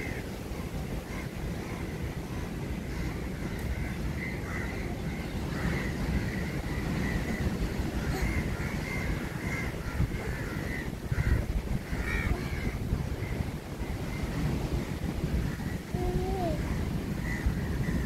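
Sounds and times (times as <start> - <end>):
birds calling: 0.0 - 18.0.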